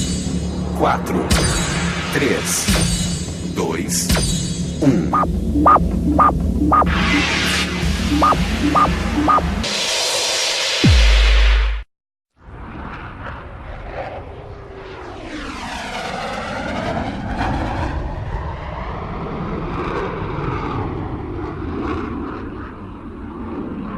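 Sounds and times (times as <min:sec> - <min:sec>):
airplane engines rumbling: 0:00.0 - 0:10.1, 0:12.4 - 0:23.9
airplane whoosh passing: 0:12.4 - 0:23.9.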